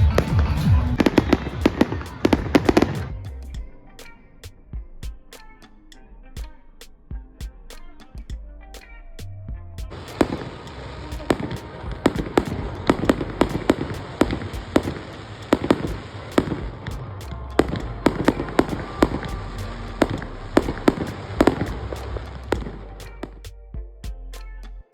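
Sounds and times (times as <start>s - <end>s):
fireworks bangs: 0.0s - 3.2s, 9.9s - 23.4s
fireworks crackling: 0.0s - 3.3s, 9.9s - 23.5s
music playing: 0.0s - 24.9s.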